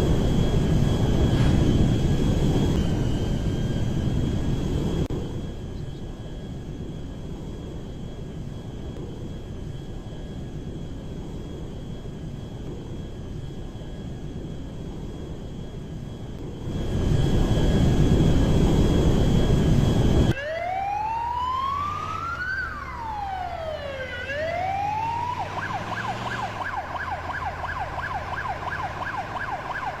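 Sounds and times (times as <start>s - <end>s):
emergency vehicle siren: 0.0s - 6.7s, 15.7s - 30.0s
loud rumble with high whine: 0.0s - 30.0s.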